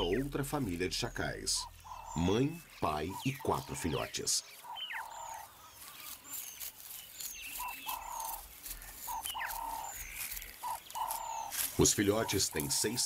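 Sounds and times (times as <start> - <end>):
bird buzzy call: 7.5 - 13.0.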